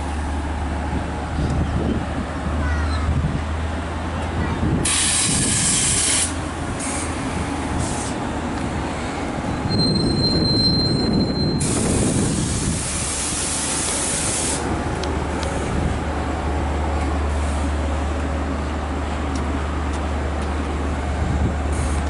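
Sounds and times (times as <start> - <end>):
train rumbling on steel rails: 0.0 - 22.0
high wheel squeal: 9.5 - 11.9.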